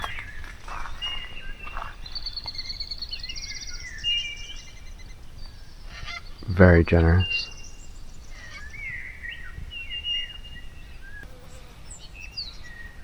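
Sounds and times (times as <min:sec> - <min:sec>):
wild birds singing and calling: 0:00.0 - 0:13.0.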